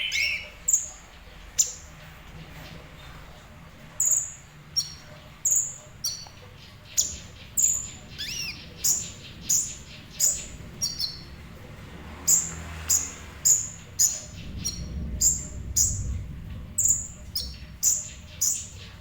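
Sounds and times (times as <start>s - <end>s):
bird chirping high and sharp: 0.0s - 0.9s, 7.0s - 11.3s.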